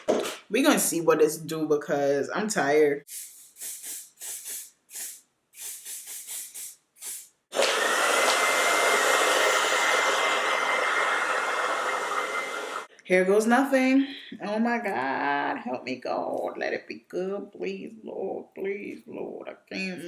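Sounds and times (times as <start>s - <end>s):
aerosol spray bursts: 3.1s - 8.4s
hair dryer running: 7.5s - 12.9s.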